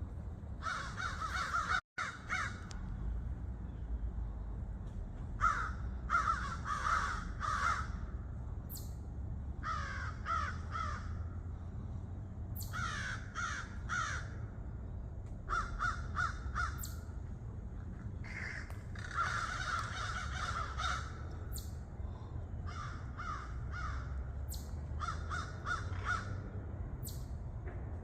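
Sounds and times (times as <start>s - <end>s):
steady low rumble: 0.0s - 28.0s
crows cawing: 0.6s - 2.8s, 5.4s - 8.1s, 9.6s - 11.4s, 12.6s - 14.5s, 15.5s - 17.1s, 18.2s - 21.6s, 22.6s - 26.4s.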